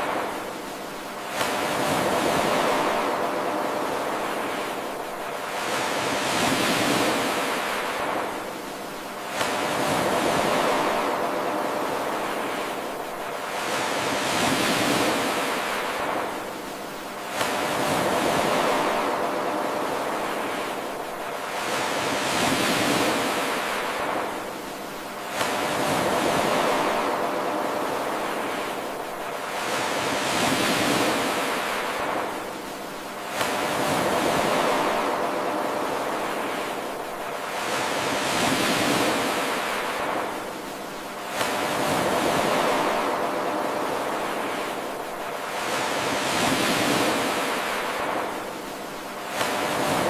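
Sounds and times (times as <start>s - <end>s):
ocean waves washing in: 0.0s - 50.0s.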